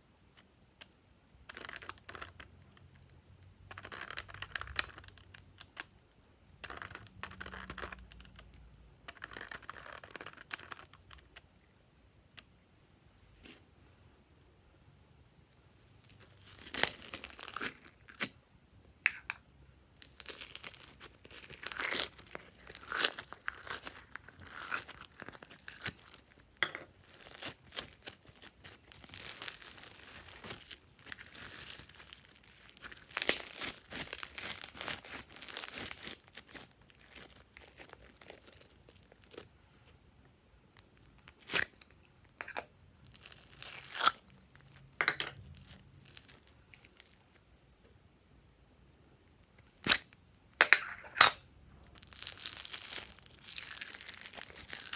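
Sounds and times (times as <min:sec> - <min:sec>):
slime crackling and popping: 0:16.0 - 0:18.3, 0:20.0 - 0:39.5, 0:41.1 - 0:47.4, 0:49.6 - 0:50.2, 0:51.8 - 0:54.9.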